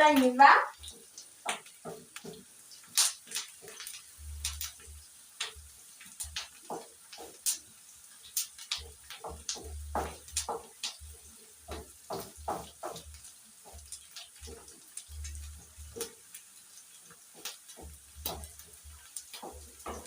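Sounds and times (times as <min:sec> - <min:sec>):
dull low bumps: 0:09.3 - 0:10.5.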